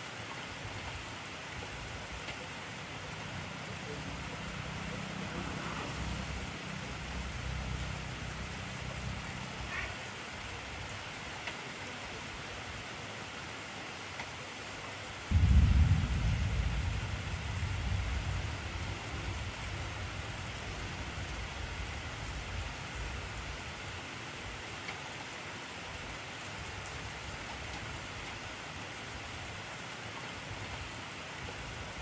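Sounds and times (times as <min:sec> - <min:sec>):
heavy rain falling: 0:00.0 - 0:32.0
deep thunder rumble: 0:15.3 - 0:23.1.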